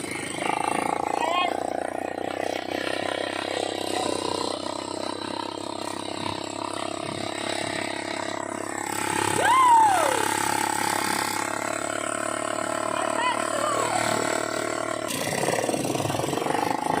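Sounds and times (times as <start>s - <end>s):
atv engine running: 0.0s - 17.0s
loud whoop rising and falling: 9.3s - 10.4s.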